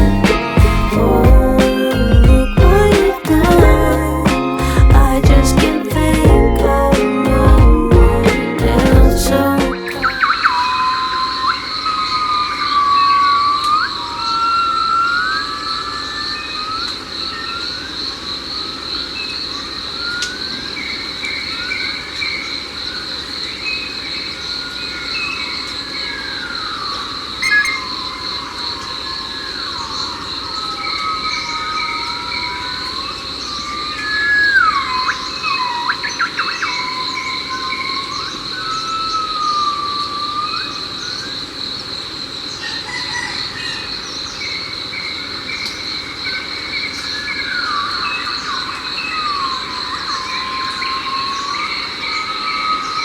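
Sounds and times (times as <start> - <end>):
high insect drone: 9.4 - 43.3
birds whistling: 9.7 - 17.7, 24.6 - 41.5.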